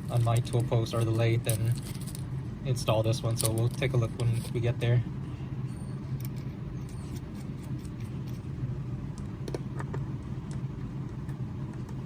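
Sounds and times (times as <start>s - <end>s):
steady low hum: 0.0s - 12.0s
small metal parts clicking: 0.2s - 2.2s.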